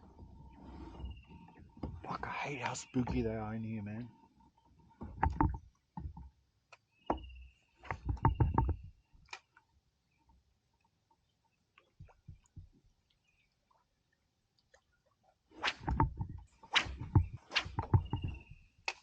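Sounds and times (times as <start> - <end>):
fishing gear knocking on kayak: 5.0 - 6.3, 7.9 - 8.8.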